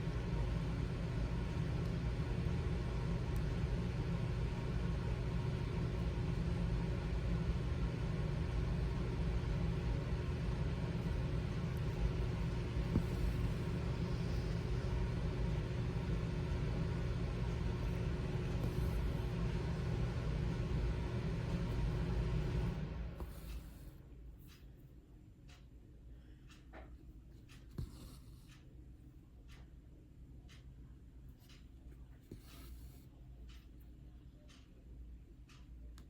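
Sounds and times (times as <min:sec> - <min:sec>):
low background rumble: 0:00.0 - 0:24.4.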